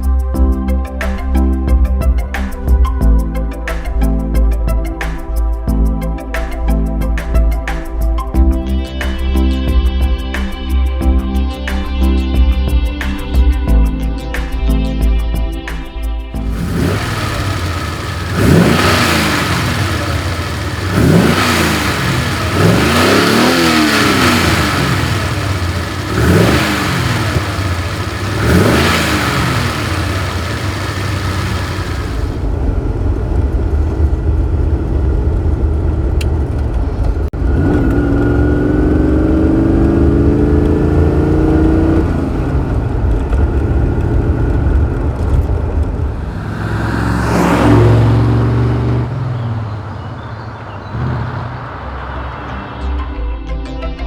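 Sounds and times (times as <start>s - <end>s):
car engine revving: 16.4s - 53.2s.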